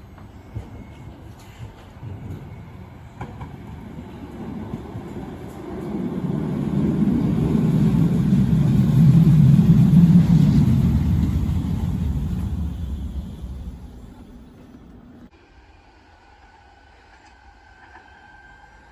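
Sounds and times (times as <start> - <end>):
tram passing by: 0.0 - 18.9.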